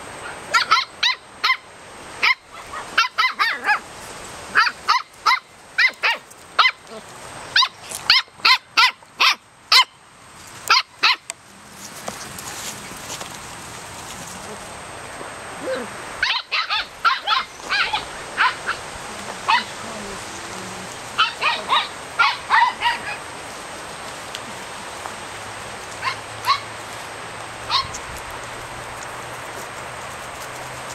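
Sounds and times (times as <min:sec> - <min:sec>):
puppies yipping: 0:00.2 - 0:01.6, 0:02.2 - 0:03.8, 0:15.7 - 0:19.9, 0:21.1 - 0:23.4, 0:25.9 - 0:27.0, 0:27.6 - 0:29.7.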